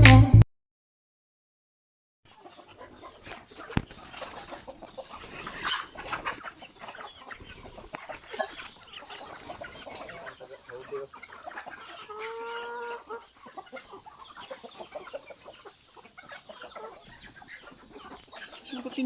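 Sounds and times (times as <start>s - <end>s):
chickens clucking: 2.3s - 19.0s.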